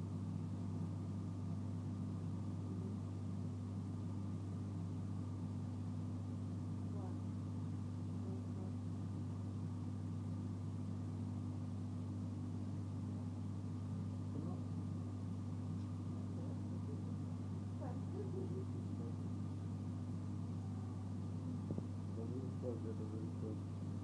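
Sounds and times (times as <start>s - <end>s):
train carriage low hum: 12.7s - 24.0s.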